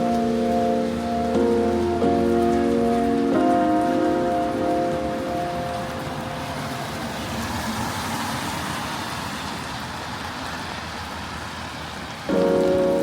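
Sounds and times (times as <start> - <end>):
heavy rain: 0.0 - 13.0
traffic on wet street: 0.0 - 13.0.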